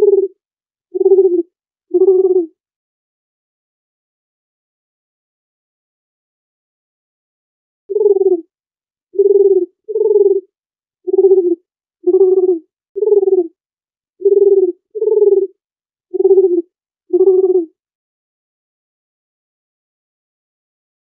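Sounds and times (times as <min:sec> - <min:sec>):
dove cooing: 0:00.0 - 0:00.4, 0:01.0 - 0:02.5, 0:07.9 - 0:08.4, 0:09.2 - 0:10.5, 0:11.1 - 0:13.6, 0:14.2 - 0:17.7.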